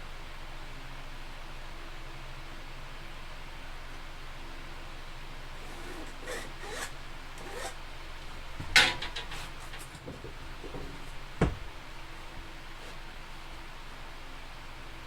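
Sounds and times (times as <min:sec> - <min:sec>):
scraping and rustling handling noises: 0:05.6 - 0:13.1
dull thump: 0:08.5 - 0:12.1.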